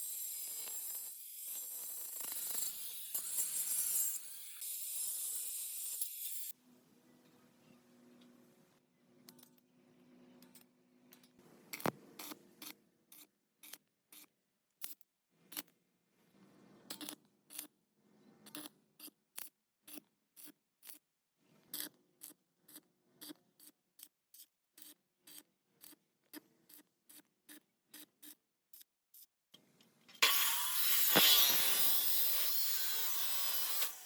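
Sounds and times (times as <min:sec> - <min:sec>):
hand tool sharp strokes: 0:30.2 - 0:34.0.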